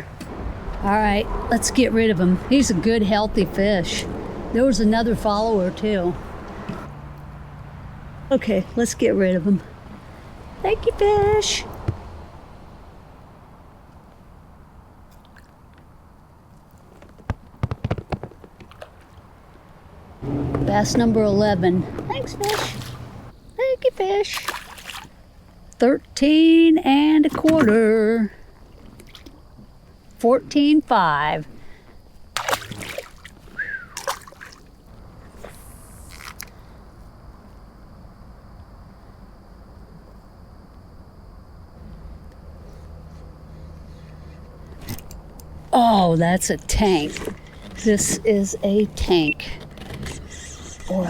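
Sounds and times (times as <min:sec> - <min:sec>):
sharp clicks and knocks: 0:17.0 - 0:18.7
low steady background hiss: 0:19.0 - 0:42.4
water splashing and dripping: 0:20.3 - 0:23.3, 0:24.3 - 0:25.2, 0:32.4 - 0:34.7.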